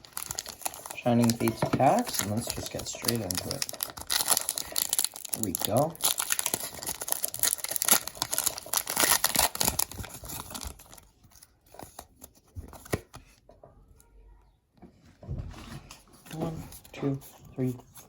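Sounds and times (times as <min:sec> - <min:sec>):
foil wrapper tearing and crinkling: 0:00.0 - 0:11.1
cards tapping and rustling: 0:00.2 - 0:11.0.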